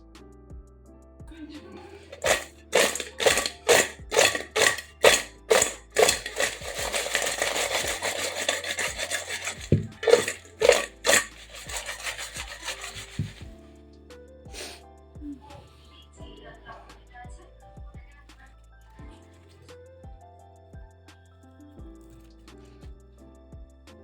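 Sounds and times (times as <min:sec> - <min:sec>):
rhythmic rasping scraping strokes: 0:02.0 - 0:13.6.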